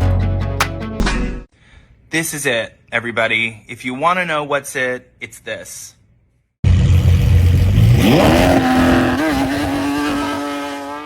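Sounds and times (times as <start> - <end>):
car engine exhaust rumble revving: 6.6 - 11.0.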